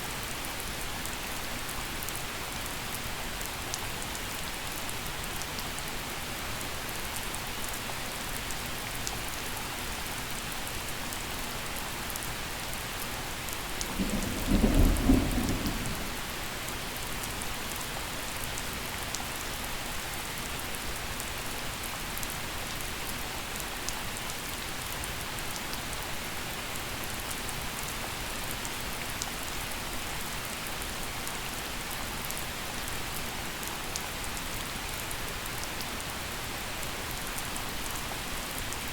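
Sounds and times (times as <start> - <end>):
gentle rain falling: 0.0 - 38.9
low rumble of thunder: 13.7 - 16.7.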